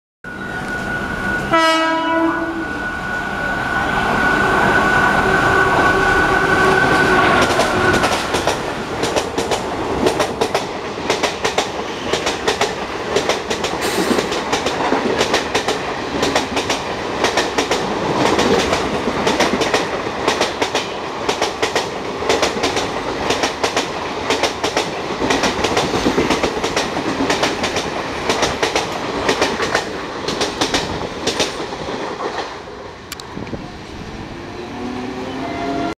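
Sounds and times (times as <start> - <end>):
train coaches rushing past: 0.3 - 35.9
locomotive horn: 1.5 - 2.8, 4.4 - 8.1, 34.8 - 35.9.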